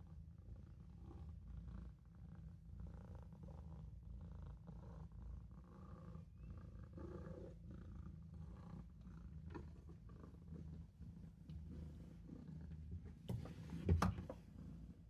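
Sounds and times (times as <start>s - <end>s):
kitten purring: 0.4s - 13.4s.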